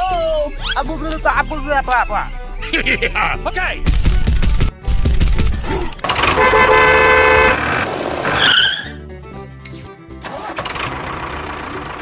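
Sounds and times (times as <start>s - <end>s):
loud low rumble: 1.4s - 7.7s
vehicle horn honking: 6.1s - 7.8s
short squeaky chirp: 8.4s - 10.0s.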